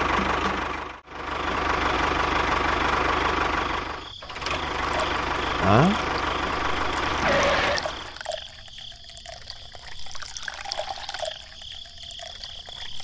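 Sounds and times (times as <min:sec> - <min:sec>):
water trickling from a pipe: 0:04.2 - 0:13.0
bubbly drips into puddle: 0:07.9 - 0:13.0.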